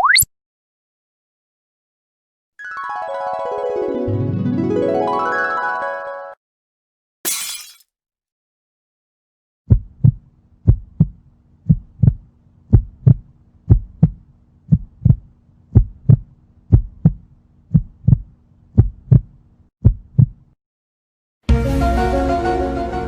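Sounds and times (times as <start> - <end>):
heartbeat thumps: 9.7 - 20.4.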